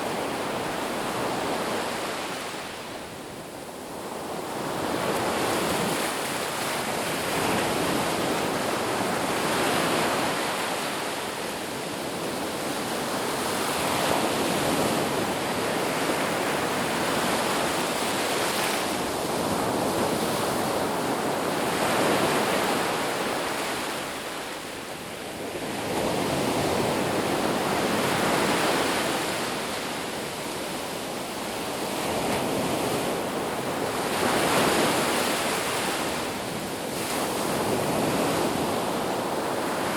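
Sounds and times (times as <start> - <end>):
ocean waves breaking: 25.5 - 39.9.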